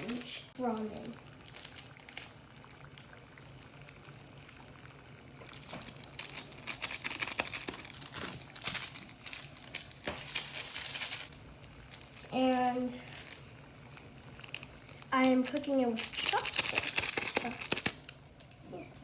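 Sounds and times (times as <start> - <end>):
packaging crinkling: 5.4 - 13.5, 14.3 - 18.6.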